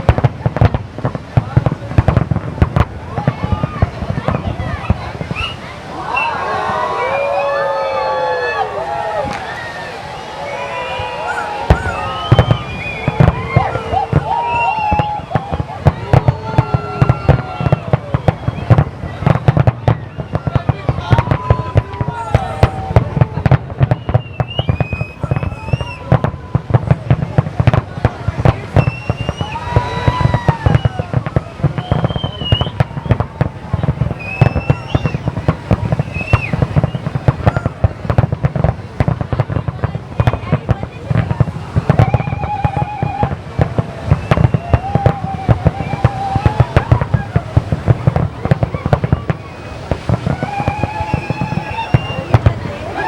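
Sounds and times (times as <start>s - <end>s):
firework bangs: 0.0s - 53.0s
firework whistling: 0.0s - 53.0s
steady whistling tone: 10.1s - 13.6s, 23.9s - 26.1s, 31.7s - 33.2s, 34.1s - 37.1s.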